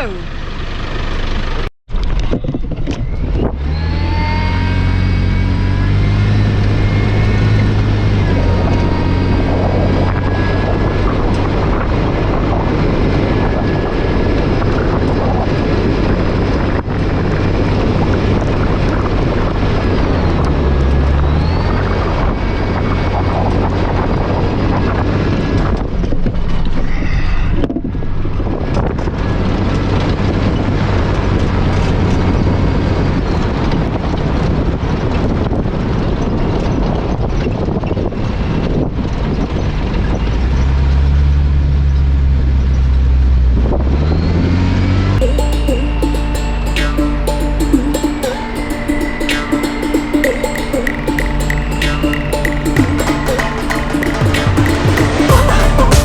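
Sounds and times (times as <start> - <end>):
road noise: 0.0 - 56.0
wind noise: 1.9 - 4.0, 4.6 - 41.0.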